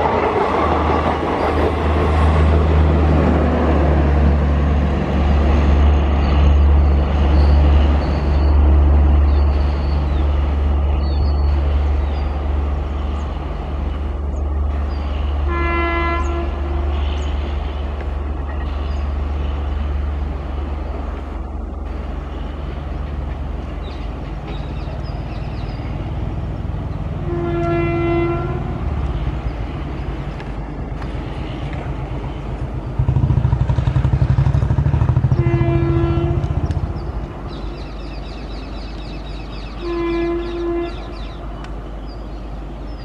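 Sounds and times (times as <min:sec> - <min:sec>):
train rumbling: 0:00.0 - 0:43.0
train horn blasts: 0:15.2 - 0:17.9, 0:27.2 - 0:29.4, 0:35.2 - 0:37.0, 0:39.7 - 0:41.5.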